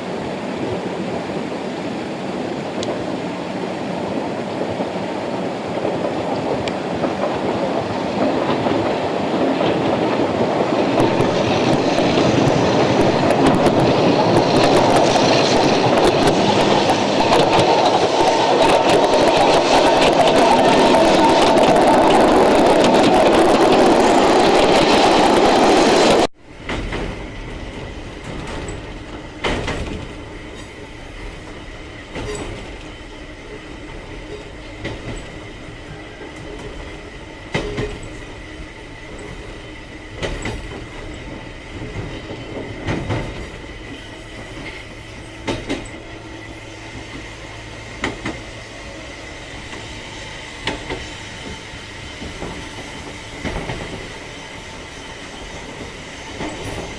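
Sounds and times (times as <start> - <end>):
electric train rumbling: 0.0 - 56.9
wheel clicks over rail joints: 26.5 - 56.9.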